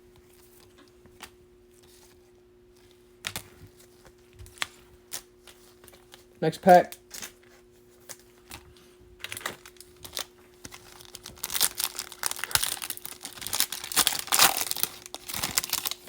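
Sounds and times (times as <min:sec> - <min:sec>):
wrapper tearing and crinkling: 0:09.3 - 0:16.0.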